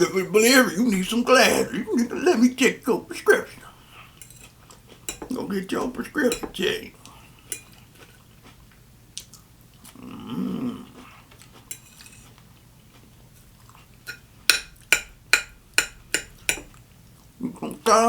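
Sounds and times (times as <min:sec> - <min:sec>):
person grunting: 0:01.0 - 0:02.4.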